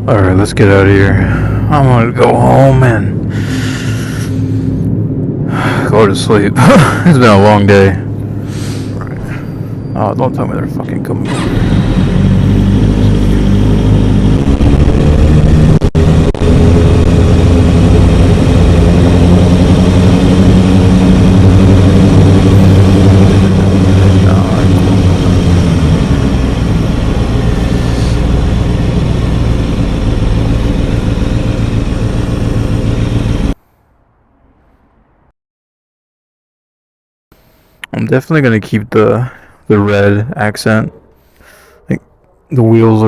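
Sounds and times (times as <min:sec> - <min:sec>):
motorcycle engine running: 0:11.0 - 0:33.6.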